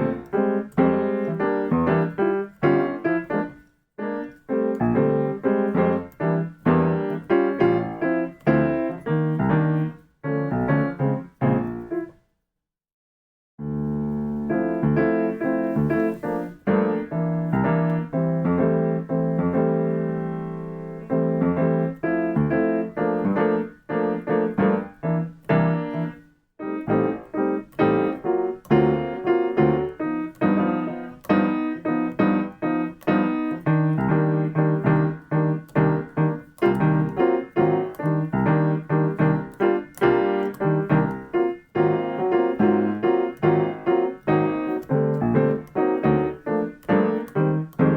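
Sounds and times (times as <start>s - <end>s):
piano jazz chords: 0.0s - 12.2s, 13.6s - 47.9s.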